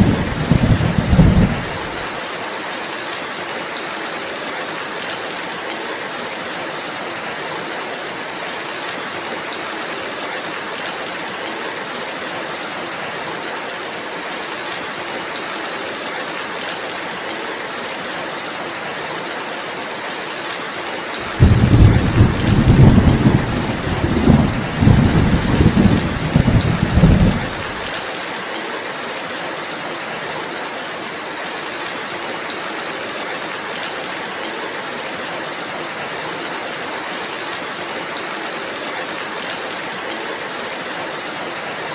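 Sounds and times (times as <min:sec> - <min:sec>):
thunder rumbling: 0:00.0 - 0:02.0, 0:21.3 - 0:27.8
steady rain falling: 0:00.0 - 0:41.9.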